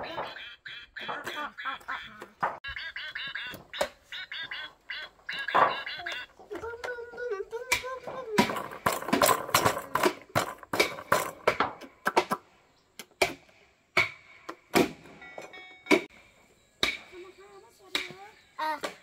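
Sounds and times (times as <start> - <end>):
sharp knocks: 7.7 - 12.4, 13.0 - 15.1.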